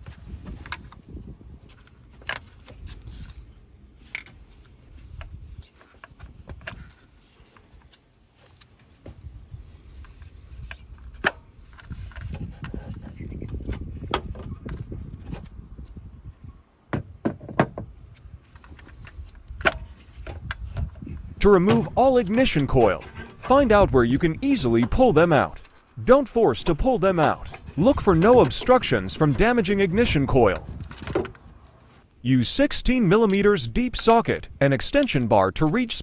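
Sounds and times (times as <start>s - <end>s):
low rumbling handling noise: 17.0s - 32.3s
plastic plugs clicking and clattering: 26.6s - 31.5s.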